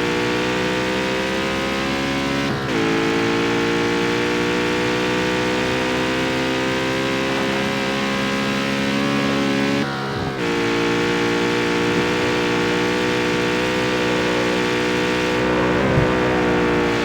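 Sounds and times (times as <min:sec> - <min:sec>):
car engine at steady revs: 0:00.0 - 0:17.0
short low thump: 0:15.7 - 0:17.0.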